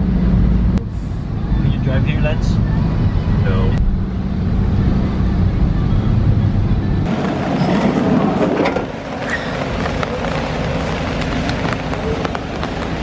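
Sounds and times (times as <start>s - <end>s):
steady rain falling: 7.1s - 13.0s.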